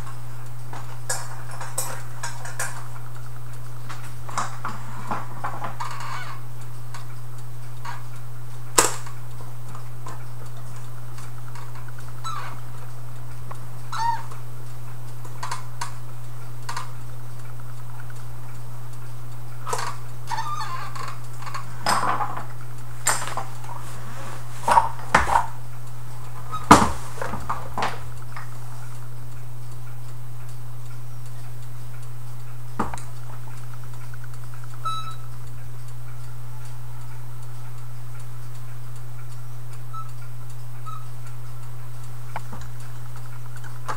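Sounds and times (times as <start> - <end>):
low steady hum: 0.0 - 43.9
metal clock parts clicking and clinking: 0.7 - 3.2, 3.8 - 7.1, 10.1 - 12.8, 19.6 - 23.9.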